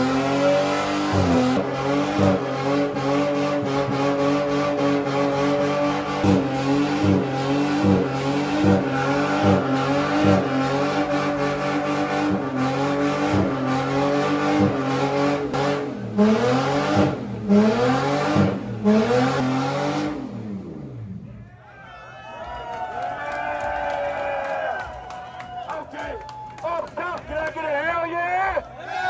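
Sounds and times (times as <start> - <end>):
car engine revving high: 0.0 - 21.3.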